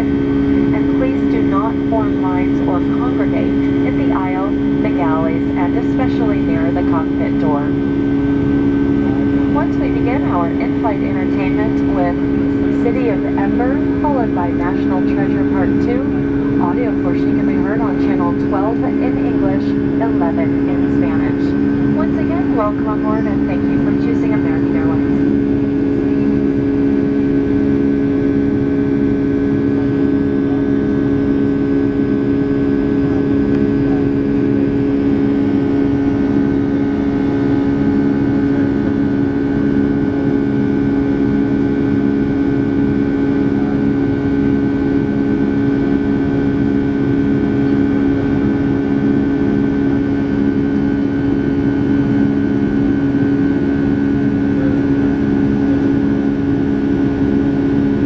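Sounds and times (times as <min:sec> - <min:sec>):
jet engine drone inside cabin: 0:00.0 - 0:58.0.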